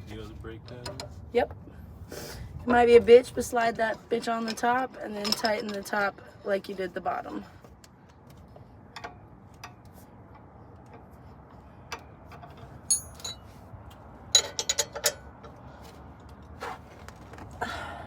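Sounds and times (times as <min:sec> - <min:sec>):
metallic tool clicks and clinks: 0:12.9 - 0:13.4.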